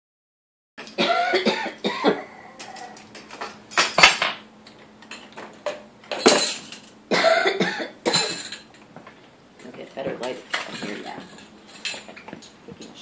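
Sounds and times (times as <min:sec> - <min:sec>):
cutlery and dishes clinking: 0:02.6 - 0:04.4, 0:05.0 - 0:06.9, 0:08.1 - 0:08.8, 0:10.2 - 0:13.0.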